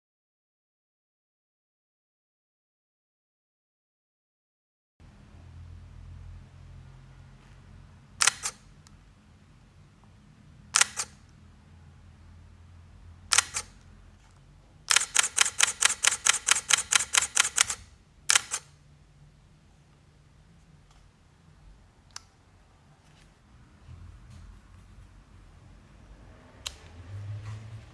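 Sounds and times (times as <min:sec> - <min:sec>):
camera shutter clicks: 0:08.2 - 0:08.6, 0:10.8 - 0:11.2, 0:13.3 - 0:13.9, 0:14.9 - 0:18.7
rapid burst of shutter clicks: 0:08.2 - 0:08.7, 0:10.8 - 0:11.2, 0:13.3 - 0:13.8, 0:14.9 - 0:18.8.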